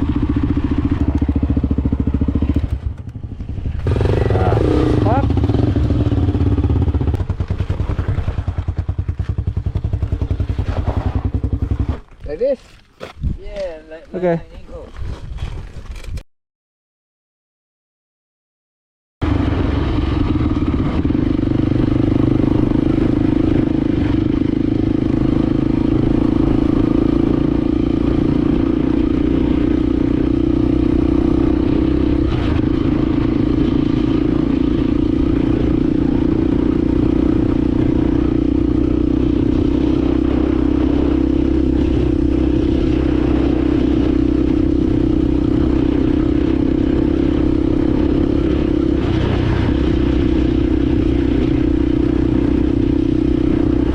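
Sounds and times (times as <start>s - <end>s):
clatter from motorcycle: 0.0s - 3.9s, 7.1s - 12.3s
motorcycle engine running: 0.0s - 12.3s, 19.2s - 53.9s.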